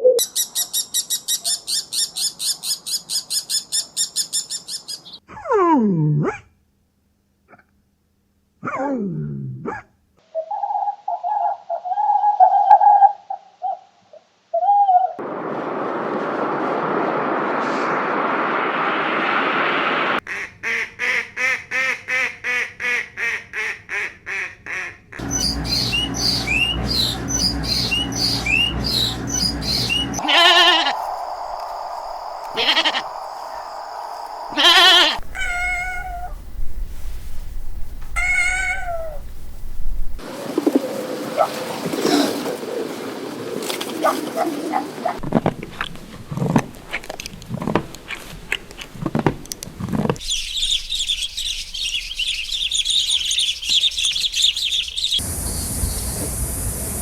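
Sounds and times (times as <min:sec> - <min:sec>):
farm animal calls: 0:25.2 - 0:31.6, 0:32.4 - 0:33.6, 0:34.5 - 0:36.4, 0:38.2 - 0:39.2
chirping: 0:25.2 - 0:36.4, 0:50.2 - 0:56.1
hissing noise: 0:25.2 - 0:40.2, 0:55.2 - 0:57.0.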